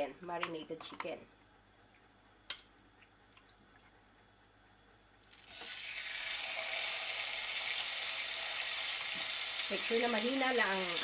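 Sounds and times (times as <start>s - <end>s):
chicken sizzling in grill pan: 5.5s - 11.0s.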